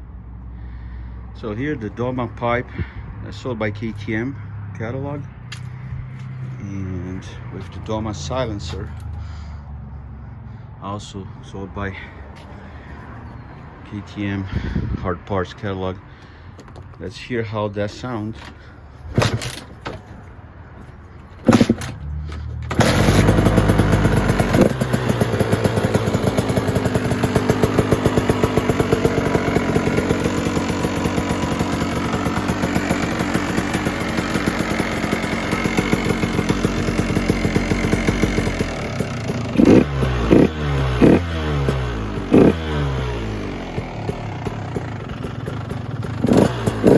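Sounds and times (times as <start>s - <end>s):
two-stroke engine running: 21.4s - 46.9s
engine throttle blips: 21.5s - 46.9s.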